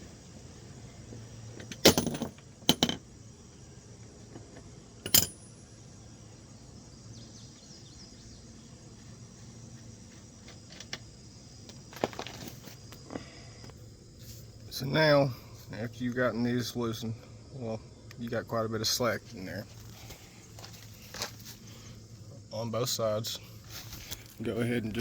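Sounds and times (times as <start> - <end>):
metal tools clinking: 1.7 - 3.0, 5.1 - 5.5.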